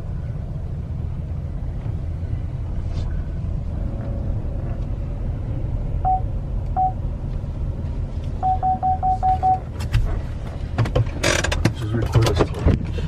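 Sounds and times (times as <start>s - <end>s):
engine rumbling: 0.0s - 13.0s
short electronic beeps: 6.0s - 7.0s, 8.4s - 9.6s.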